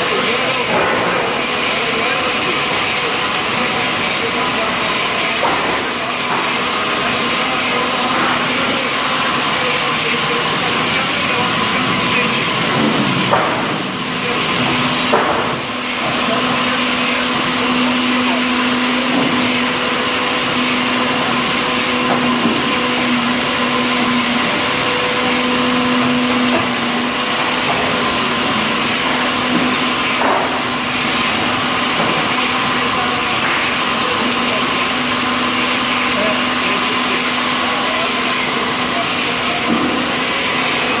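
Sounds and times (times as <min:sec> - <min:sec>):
sawmill machinery running: 0:00.0 - 0:41.0.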